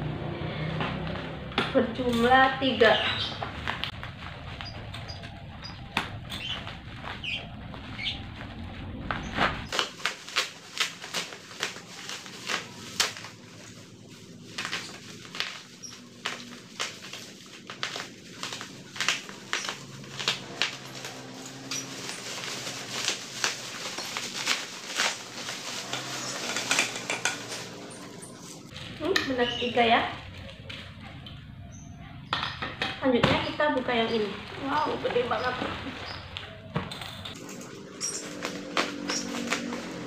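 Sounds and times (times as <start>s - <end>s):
packaging crinkling: 3.1s - 31.2s, 37.3s - 40.0s
low hum: 3.4s - 9.7s.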